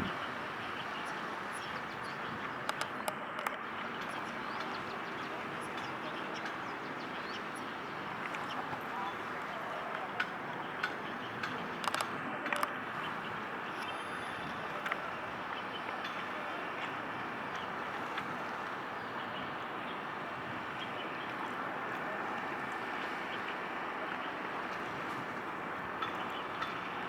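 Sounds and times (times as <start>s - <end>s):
faint clicks: 1.6s - 18.3s.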